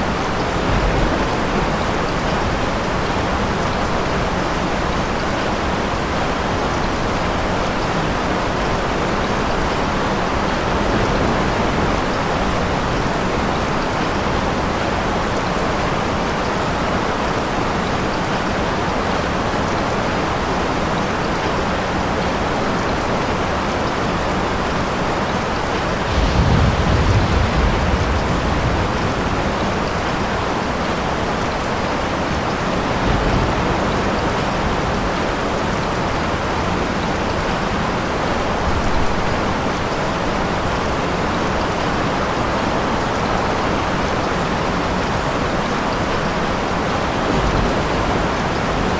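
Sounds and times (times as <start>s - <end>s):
thunder rumble: 0.0s - 5.1s, 8.6s - 16.5s, 25.6s - 36.4s, 44.0s - 48.9s
heavy rain falling: 0.0s - 48.9s.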